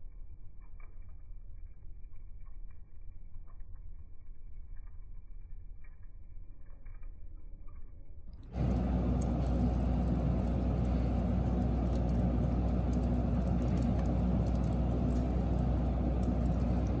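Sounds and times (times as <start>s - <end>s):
fire crackles: 8.5s - 17.0s
wood fire roaring: 8.5s - 17.0s.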